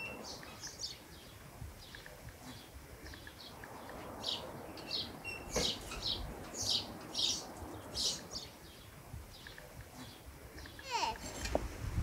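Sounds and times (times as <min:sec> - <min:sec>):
small birds chirping: 0:00.0 - 0:11.4.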